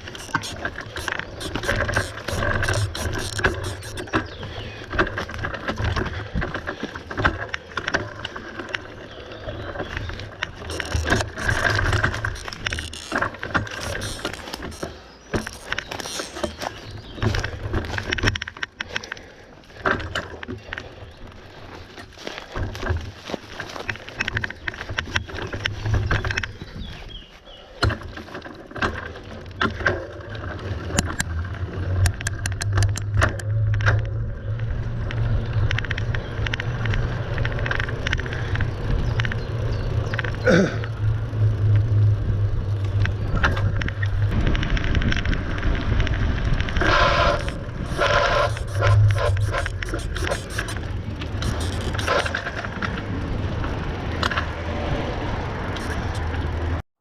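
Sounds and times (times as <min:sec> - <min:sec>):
bike rattling and knocking: 0:00.0 - 0:56.8.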